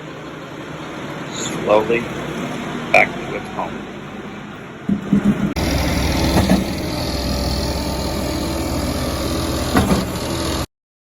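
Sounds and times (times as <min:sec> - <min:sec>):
diesel truck engine running: 0:00.0 - 0:10.7
engine clatters: 0:04.8 - 0:10.7.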